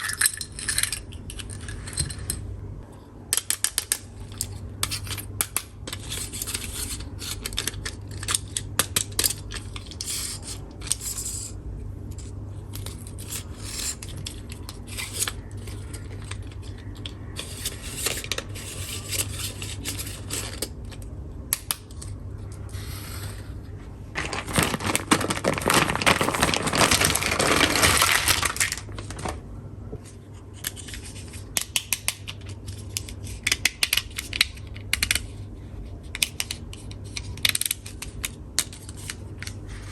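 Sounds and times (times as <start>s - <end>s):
plastic toy pieces clicking: 3.3s - 11.1s
plastic pieces rattling: 24.2s - 29.4s.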